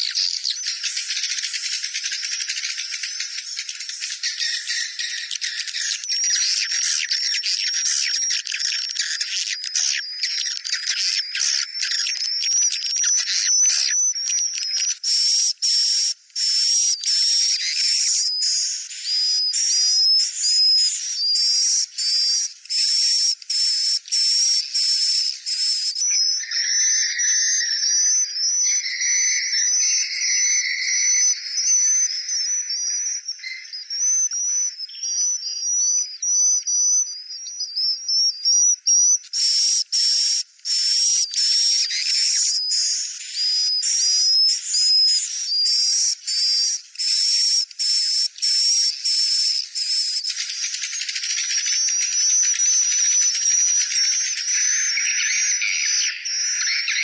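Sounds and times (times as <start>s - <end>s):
swiftlets twittering chirps: 22.7s - 36.8s, 38.0s - 57.0s.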